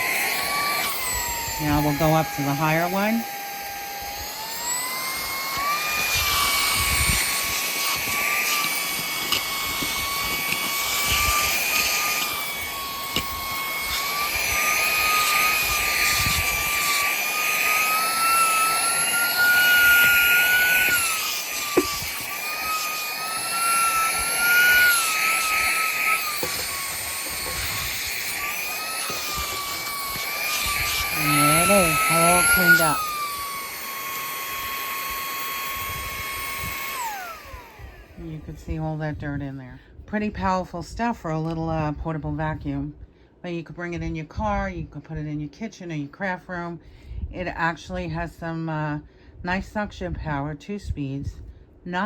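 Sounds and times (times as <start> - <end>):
handheld vacuum motor whine: 0.0 - 39.3.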